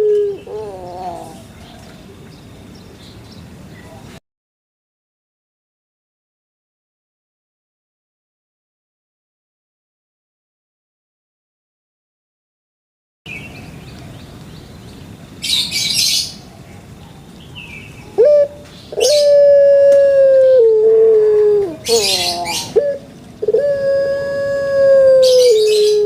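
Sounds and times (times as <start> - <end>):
bird singing clear low notes: 0.0 - 4.2, 21.5 - 26.0.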